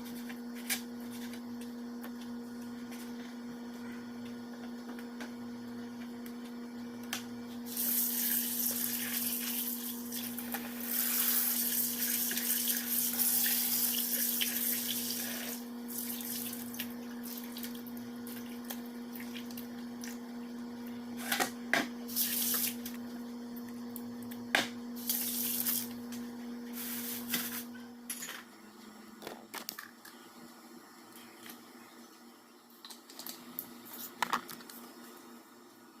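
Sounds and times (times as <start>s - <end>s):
electrical hum: 0.0s - 36.0s
water running from tap: 7.7s - 18.1s.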